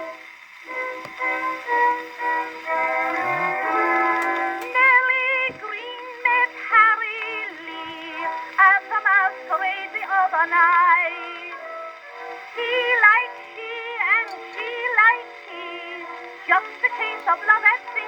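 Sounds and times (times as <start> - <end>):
small orchestra playing: 2.6 - 4.7
person singing with vibrato: 3.1 - 11.9.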